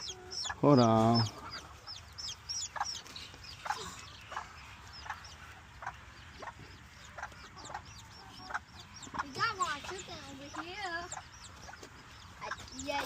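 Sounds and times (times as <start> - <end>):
chickens peeping: 0.0 - 13.0.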